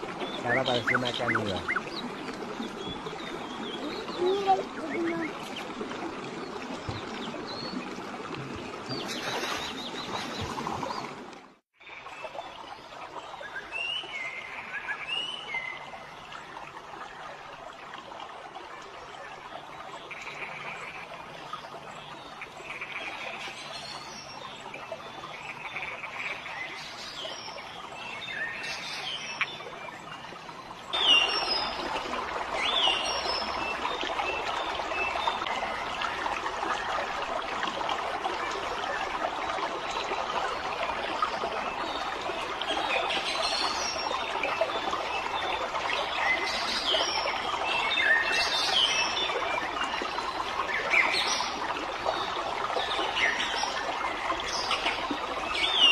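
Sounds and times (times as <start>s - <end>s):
birds chirping: 0.0s - 5.8s
trickling flowing water: 0.0s - 55.9s.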